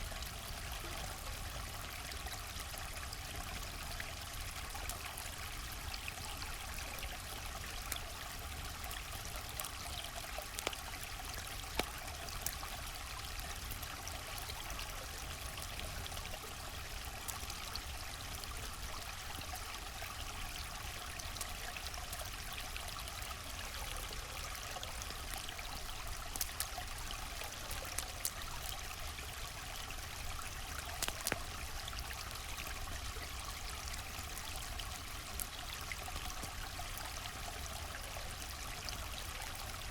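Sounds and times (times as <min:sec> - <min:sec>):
campfire popping: 0:09.5 - 0:11.0, 0:11.6 - 0:12.7, 0:24.7 - 0:32.9.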